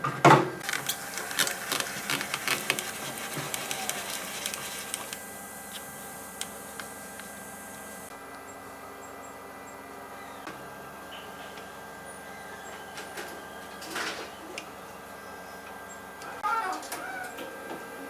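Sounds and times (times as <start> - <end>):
small hard objects clattering: 0.6 - 5.2.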